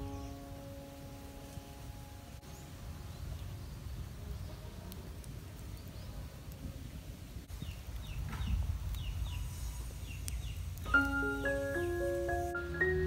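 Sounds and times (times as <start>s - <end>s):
bird chirping: 0.0s - 4.7s, 7.5s - 13.0s.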